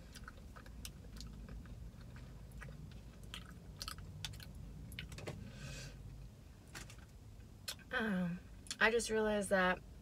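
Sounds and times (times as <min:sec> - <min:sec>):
person chewing: 0:00.0 - 0:05.2.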